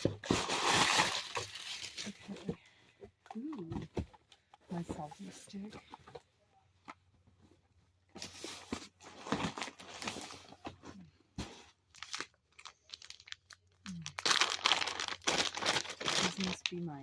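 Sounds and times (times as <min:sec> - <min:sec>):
plastic packaging crinkling: 0:00.1 - 0:02.4, 0:11.9 - 0:17.0.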